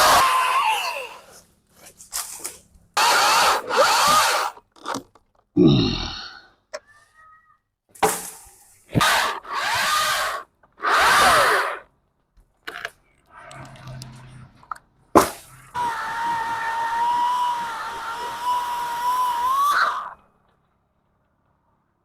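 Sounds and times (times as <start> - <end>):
chainsaw cutting branches: 0.0 - 5.0, 8.0 - 11.9, 15.1 - 20.2.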